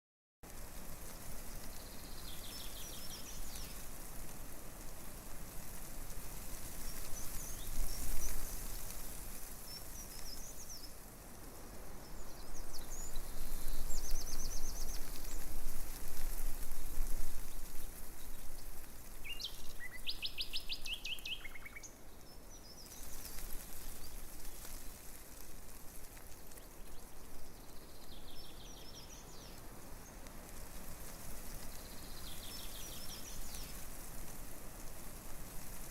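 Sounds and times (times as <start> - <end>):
wind rustling tree leaves: 0.4 - 35.9
small birds chirping: 1.0 - 34.2.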